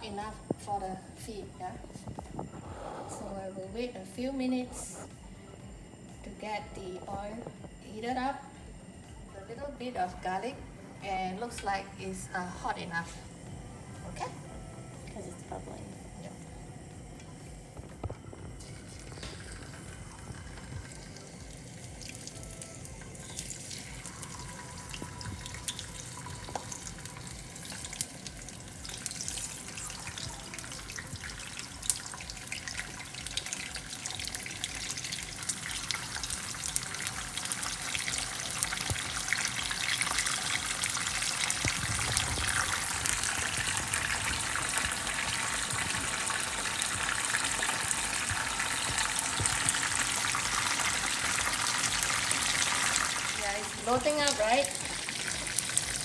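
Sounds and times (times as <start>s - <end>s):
oil sizzling and crackling in pan: 17.0s - 56.0s.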